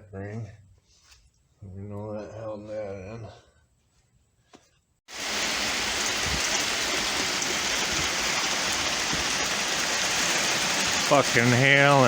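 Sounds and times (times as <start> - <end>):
hail pelting down: 5.1 - 12.0.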